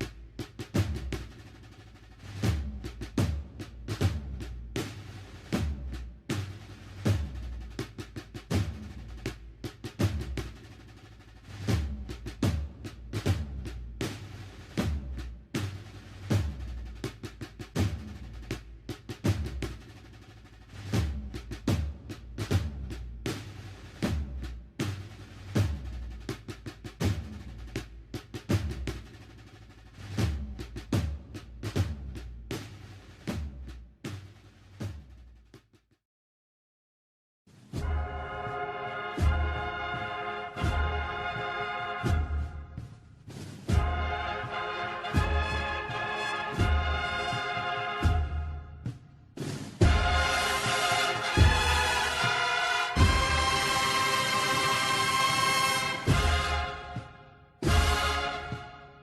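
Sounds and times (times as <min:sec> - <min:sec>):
snare drum rolls: 0:00.0 - 0:35.9, 0:37.5 - 0:59.0
bass drum strokes: 0:48.0 - 0:53.8, 0:55.9 - 0:58.8
bass drum strikes: 0:49.8 - 0:50.4, 0:53.0 - 0:53.6.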